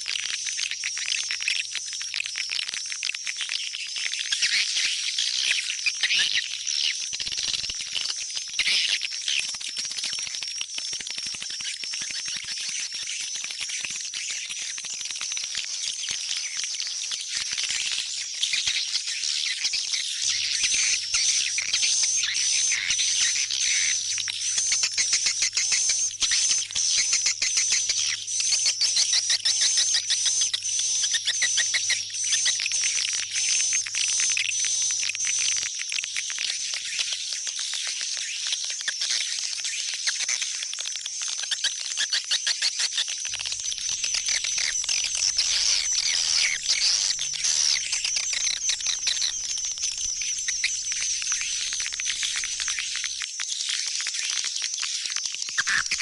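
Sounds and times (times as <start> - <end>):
swiftlet calls twittering: 18.6 - 35.2, 41.6 - 53.2, 55.6 - 56.0
swiftlets twittering: 43.2 - 53.2
low electrical hum: 43.3 - 53.0.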